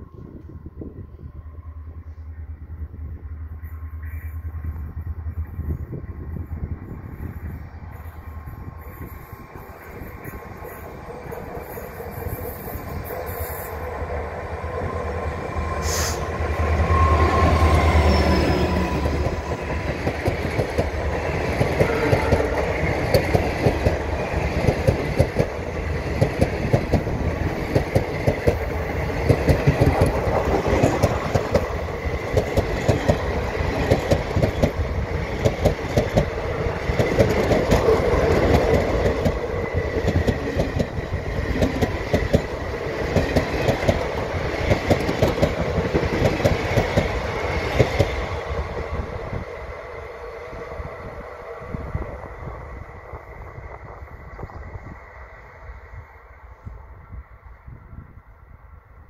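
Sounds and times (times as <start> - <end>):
train wheels clattering: 18.0 - 48.2.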